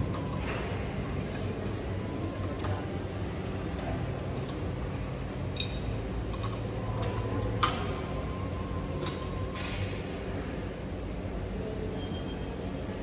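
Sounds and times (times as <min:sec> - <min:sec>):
metallic tool clinks: 0:11.9 - 0:13.0.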